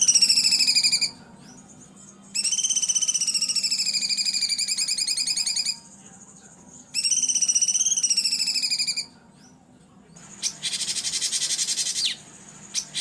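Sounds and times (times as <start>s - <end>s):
songbird harsh rapid trill: 0.0s - 1.6s, 2.3s - 6.0s, 6.9s - 9.1s, 10.2s - 13.0s.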